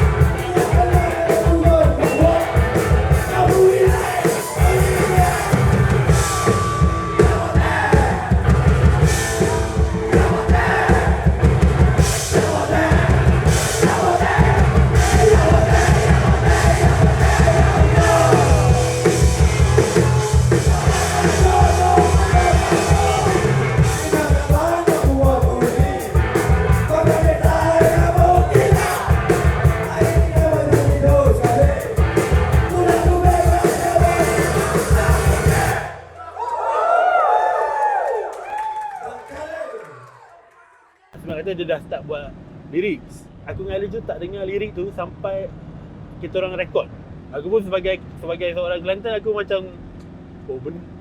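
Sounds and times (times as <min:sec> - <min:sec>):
punk rock band playing: 0:00.0 - 0:36.0
rapid drumming: 0:00.0 - 0:36.0
shouted vocals: 0:00.0 - 0:41.2.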